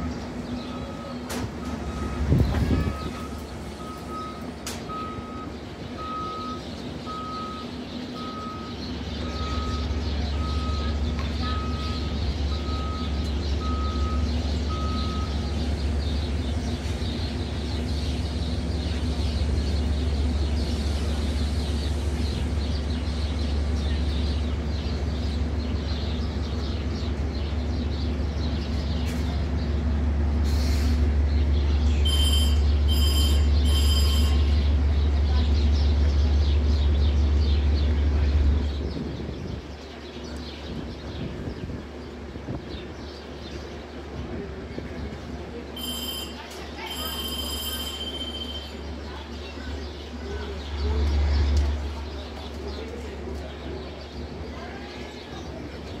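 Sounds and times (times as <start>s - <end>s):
train idling rumble: 0.0s - 56.0s
warning beep: 32.1s - 34.6s, 45.8s - 48.8s.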